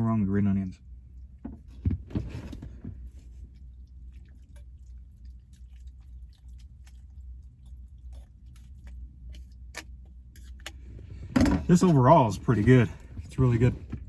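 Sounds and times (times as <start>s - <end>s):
quiet chewing with clicks: 2.6s - 14.0s
person eating noodles: 4.0s - 11.7s.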